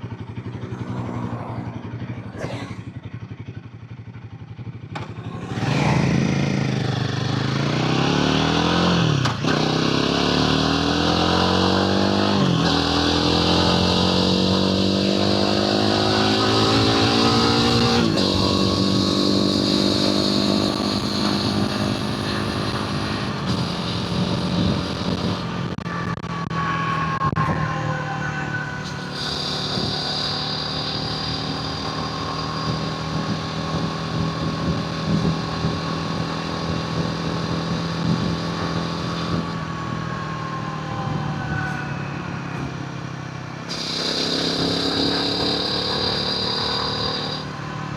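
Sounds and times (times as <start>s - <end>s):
motorcycle engine accelerating: 0.0s - 47.9s
wind noise: 16.4s - 26.2s, 32.4s - 40.1s.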